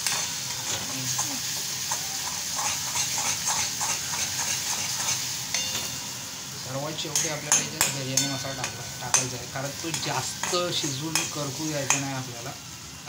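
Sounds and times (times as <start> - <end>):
spatula scraping pan: 0.0 - 6.1
masala sizzling in pan: 0.0 - 13.0.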